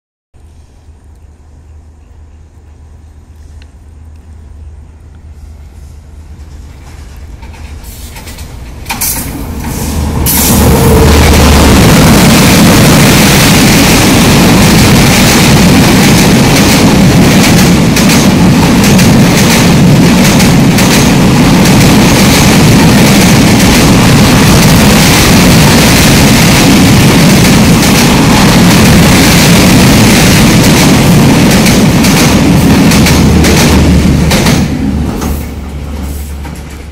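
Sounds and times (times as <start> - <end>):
train crossing steel bridge: 0.4 - 36.9.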